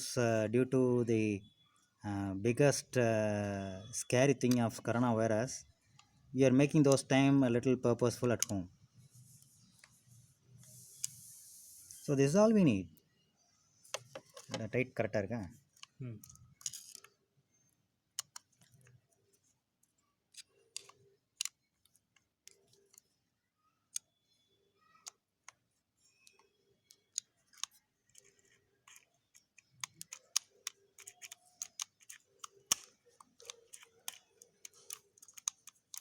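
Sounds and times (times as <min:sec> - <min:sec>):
metal lock parts clicking and tapping: 0:15.7 - 0:17.2, 0:20.3 - 0:23.1, 0:25.0 - 0:36.0.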